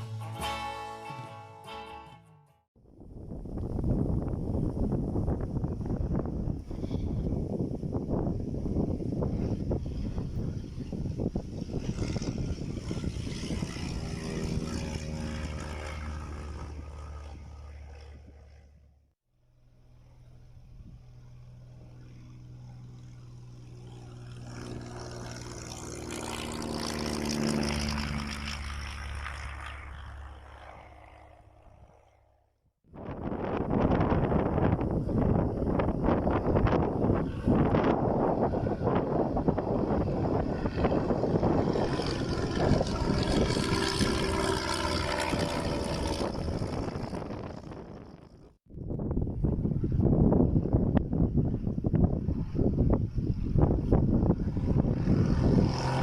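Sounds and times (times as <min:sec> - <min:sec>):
wind buffeting microphone: 0:02.8 - 0:18.6, 0:32.9 - 0:56.0
propeller plane passing low: 0:02.8 - 0:56.0.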